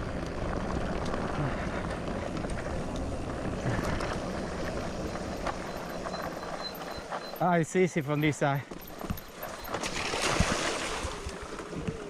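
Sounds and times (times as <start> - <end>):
bike splashing through water: 9.4 - 12.0.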